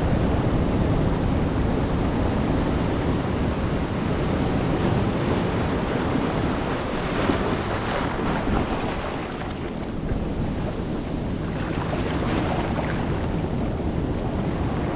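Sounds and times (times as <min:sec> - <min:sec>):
wind rumbling on microphone: 0:00.0 - 0:14.9
ocean waves breaking: 0:02.2 - 0:14.9.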